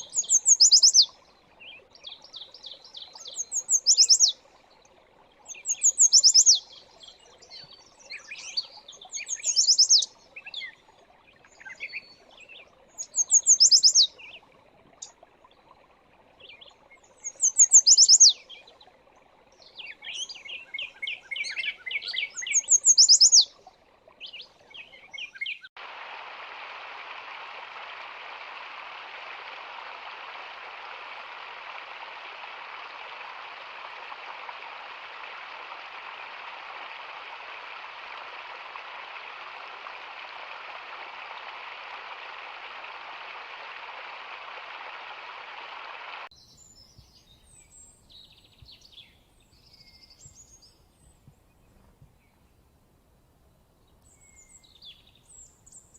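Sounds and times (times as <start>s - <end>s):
songbirds singing trills: 0.0s - 4.6s, 5.4s - 15.2s, 16.4s - 25.8s, 46.3s - 52.6s, 53.8s - 55.9s
soft bird chirps: 0.0s - 15.3s, 16.4s - 25.8s, 46.3s - 52.7s, 53.8s - 55.9s
running water rushing: 0.0s - 46.3s
faint low hiss: 23.6s - 55.9s.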